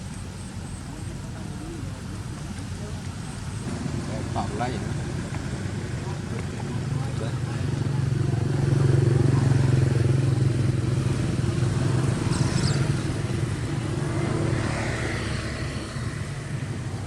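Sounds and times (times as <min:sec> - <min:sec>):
motorcycle engine running: 0:03.6 - 0:17.0.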